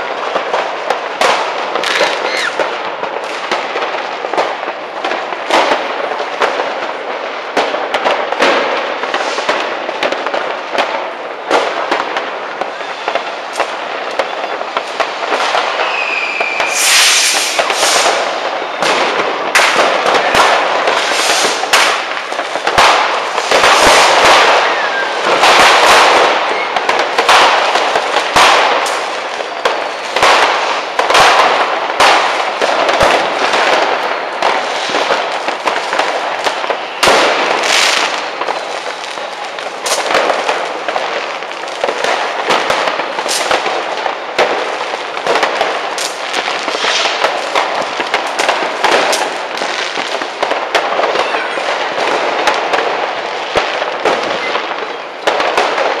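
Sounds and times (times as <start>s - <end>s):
fireworks crackling and banging: 0.0s - 56.0s.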